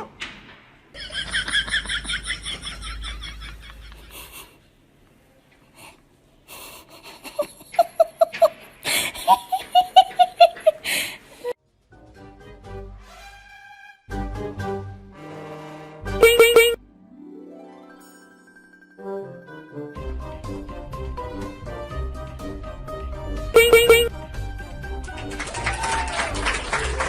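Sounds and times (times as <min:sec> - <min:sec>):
high-pitched giggling: 0:07.0 - 0:10.8.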